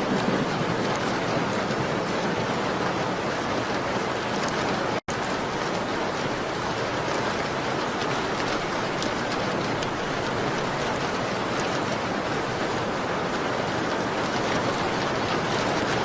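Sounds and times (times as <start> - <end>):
rain against a window: 0.0 - 16.0.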